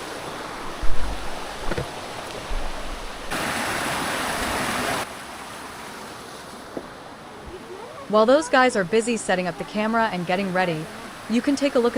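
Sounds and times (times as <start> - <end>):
wind buffeting microphone: 0.0 - 3.4
stream water rushing: 0.0 - 11.9.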